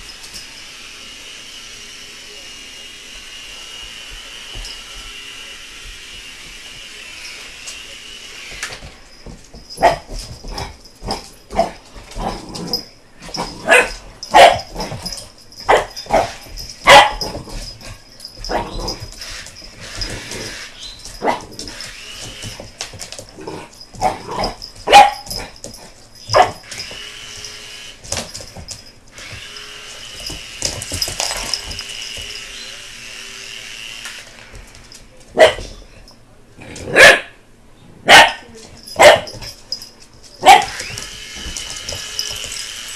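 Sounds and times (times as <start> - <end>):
puppy barking: 13.6 - 14.9, 15.7 - 17.4, 24.0 - 25.5, 26.3 - 26.7, 35.4 - 35.8, 36.9 - 37.4, 38.0 - 39.4, 40.4 - 40.9.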